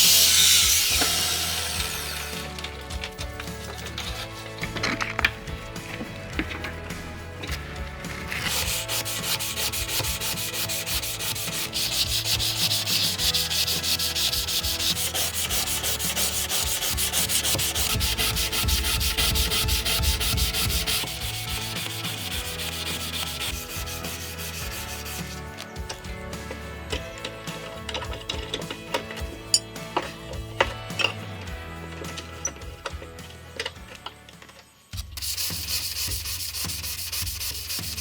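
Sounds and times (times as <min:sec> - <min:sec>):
abrasive rubbing on knife blade: 0:00.0 - 0:02.8, 0:08.1 - 0:25.7.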